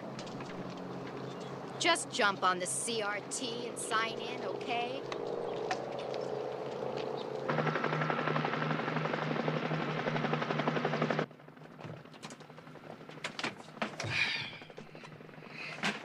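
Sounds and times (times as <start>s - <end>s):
steady hum: 0.0s - 11.3s
helicopter rotor beating: 0.0s - 16.0s.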